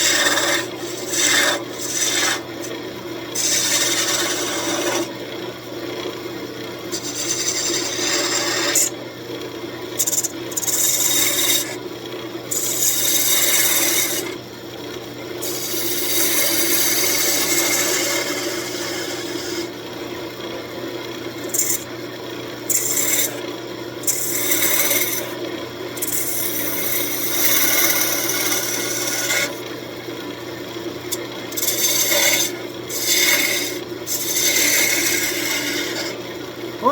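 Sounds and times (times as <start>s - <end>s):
turning tool cutting wood: 0.0s - 9.0s, 9.8s - 14.4s, 15.4s - 36.9s
lathe motor humming: 0.0s - 11.7s, 15.6s - 20.1s, 21.1s - 21.8s, 25.9s - 29.7s, 31.0s - 36.9s.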